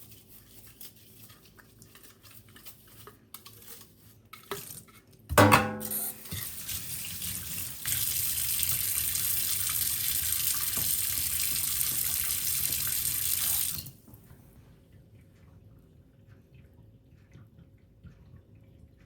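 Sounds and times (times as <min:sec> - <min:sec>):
tap running into a sink: 0:05.3 - 0:13.9
faint water drips: 0:06.0 - 0:19.0.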